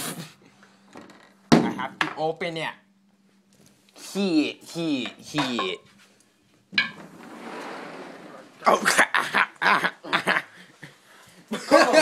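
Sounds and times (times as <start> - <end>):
person laughing: 8.6 - 12.0.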